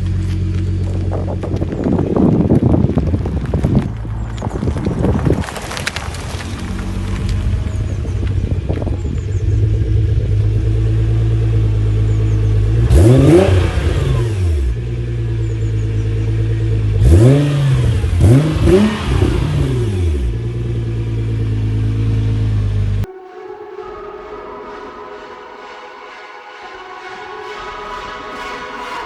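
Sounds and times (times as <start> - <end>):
car engine idling and revving: 0.0 - 23.1.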